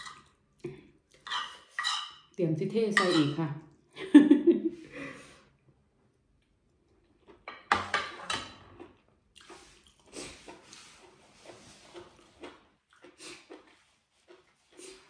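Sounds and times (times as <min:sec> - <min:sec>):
wet crunchy chewing: 0:08.8 - 0:15.0.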